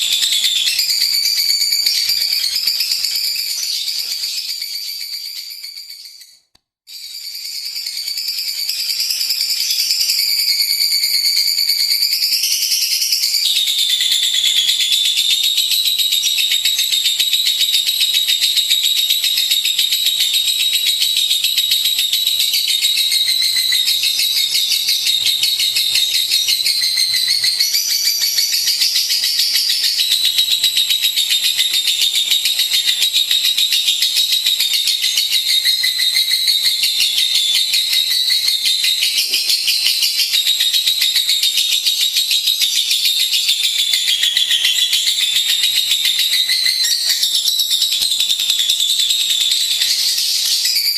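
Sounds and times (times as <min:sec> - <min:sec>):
lovebird chattering: 0:00.0 - 0:04.6.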